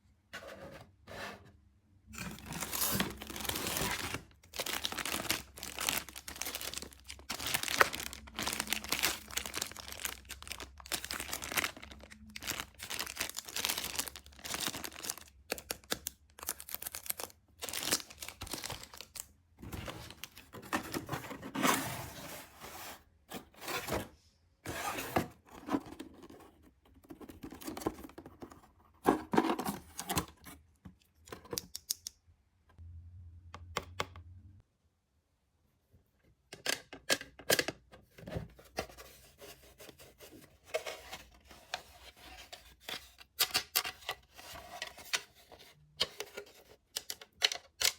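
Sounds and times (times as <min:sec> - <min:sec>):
packaging tearing and crinkling: 0:02.4 - 0:19.2.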